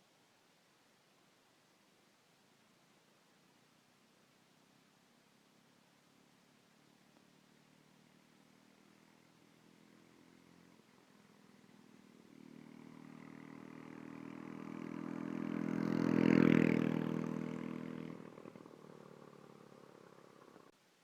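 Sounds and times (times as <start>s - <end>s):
mini bike engine passing by: 7.1s - 20.7s.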